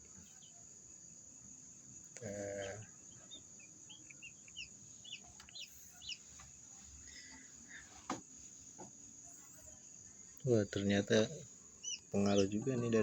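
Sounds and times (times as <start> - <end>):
chicks peeping: 2.2 - 6.6, 10.5 - 13.0
faint clicks: 5.2 - 5.7.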